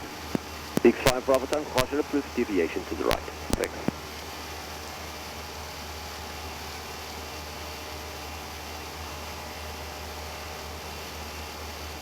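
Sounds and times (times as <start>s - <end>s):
low hum: 0.0s - 4.2s
cockpit airflow and ventilation: 0.0s - 5.9s.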